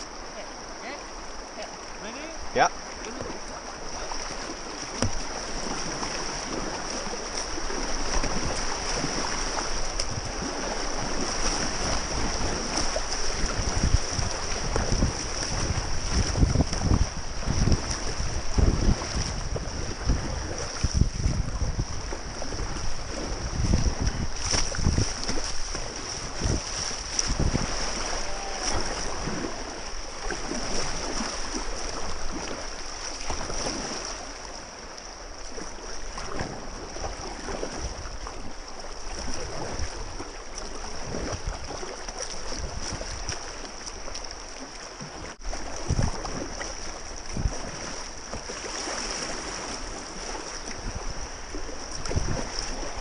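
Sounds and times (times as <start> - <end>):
kayak paddle strokes: 0.0 - 53.0
river whitewater rushing: 25.3 - 35.3.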